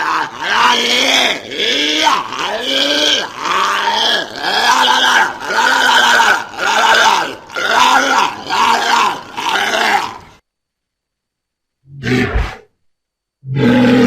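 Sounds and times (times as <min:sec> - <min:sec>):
walrus calling: 0:00.0 - 0:10.4, 0:13.4 - 0:14.0.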